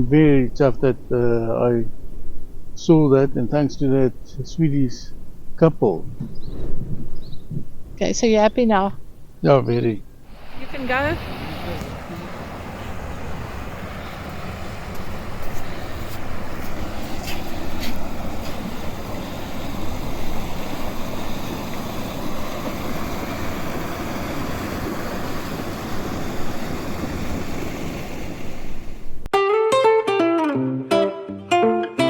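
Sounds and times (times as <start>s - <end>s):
car road and wind noise: 5.1s - 29.3s
acoustic guitar music: 29.3s - 32.0s.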